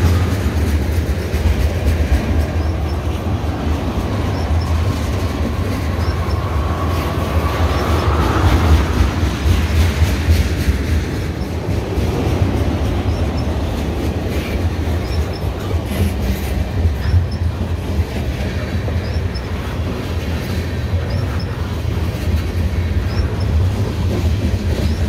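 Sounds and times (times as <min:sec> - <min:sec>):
rumble of train wheels on rail: 0:00.0 - 0:25.0
wheels clicking over rail joints: 0:00.0 - 0:25.0
faint wheel squeal: 0:20.8 - 0:21.8, 0:22.7 - 0:23.6.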